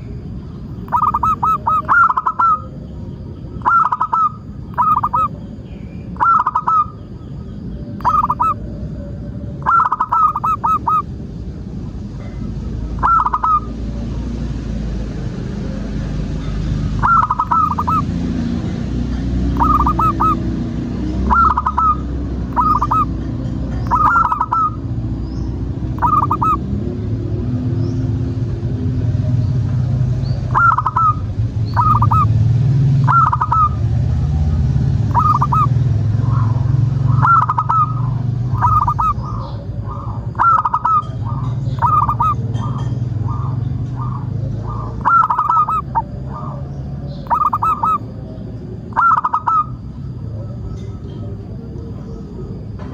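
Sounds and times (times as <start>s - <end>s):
dove cooing: 0.0s - 5.5s, 6.1s - 7.2s, 7.9s - 11.1s, 12.2s - 13.8s, 17.0s - 18.2s, 19.5s - 25.0s, 25.9s - 27.0s, 30.5s - 32.4s, 33.0s - 33.9s, 35.0s - 52.9s.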